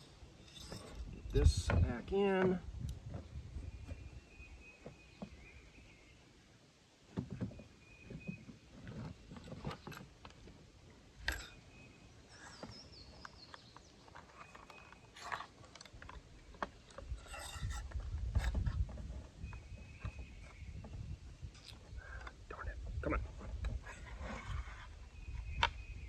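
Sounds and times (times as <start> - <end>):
heavy handling noise: 0.0 - 4.1.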